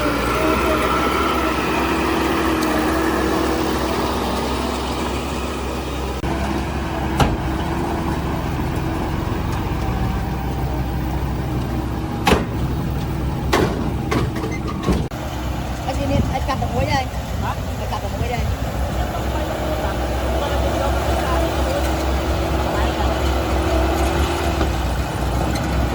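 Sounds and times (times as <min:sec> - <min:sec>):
diesel engine running: 0:00.0 - 0:25.9
sharp metallic knocks: 0:12.2 - 0:15.1.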